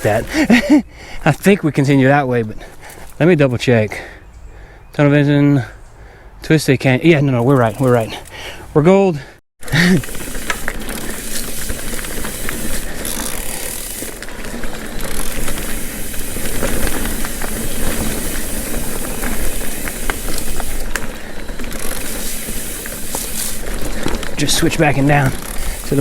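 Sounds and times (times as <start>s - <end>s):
tyres rolling on dirt: 0.0s - 0.8s, 9.6s - 26.0s
bike clicks and rattles: 7.3s - 8.5s, 9.6s - 26.0s.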